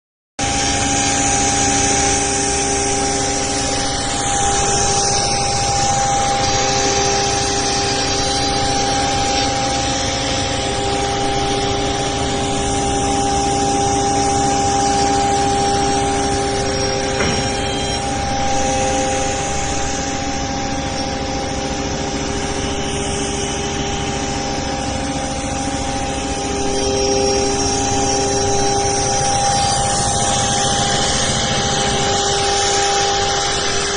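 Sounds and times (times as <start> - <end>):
cnc router spindle whine: 0.4 - 33.9
hissing machine noise: 0.4 - 33.9.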